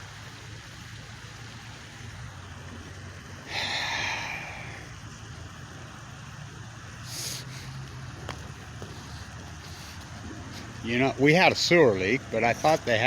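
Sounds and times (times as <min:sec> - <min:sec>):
low background hum: 0:00.0 - 0:13.0
person exhaling sharply: 0:03.5 - 0:04.9.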